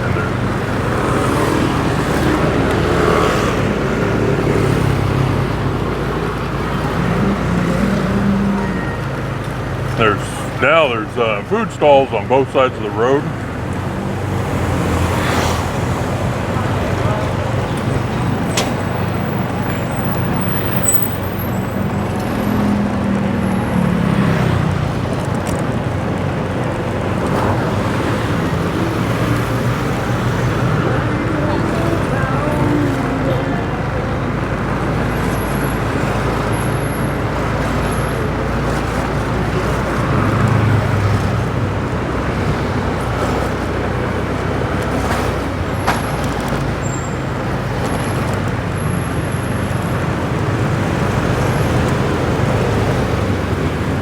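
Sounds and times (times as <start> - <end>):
traffic noise: 0.0 - 54.0
motorbike engine running: 13.3 - 54.0.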